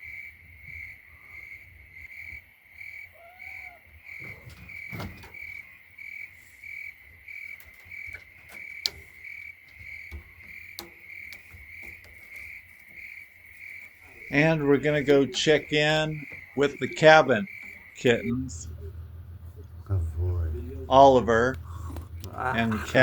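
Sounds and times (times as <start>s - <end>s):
crickets chirping: 0.0s - 23.0s
sharp clicks and knocks: 7.5s - 14.6s.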